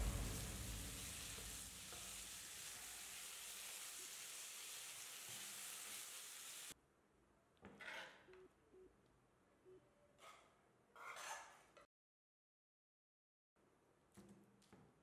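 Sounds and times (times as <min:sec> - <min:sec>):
chicken sizzling in a pan: 0:00.0 - 0:06.8.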